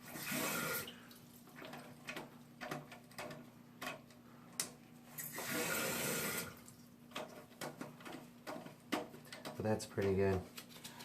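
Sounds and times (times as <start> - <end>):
water hissing through toilet valve: 0.0 - 1.1, 5.2 - 6.6.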